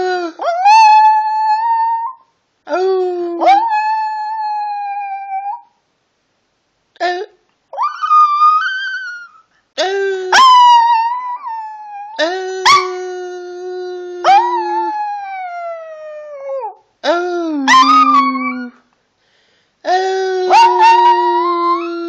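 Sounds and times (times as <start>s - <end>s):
dog howling: 3.4s - 5.7s, 7.8s - 9.4s, 14.2s - 16.8s, 17.7s - 18.8s, 20.5s - 22.0s.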